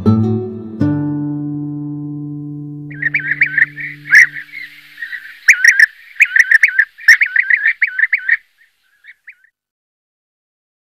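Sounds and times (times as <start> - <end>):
songbird singing: 2.9 - 9.5.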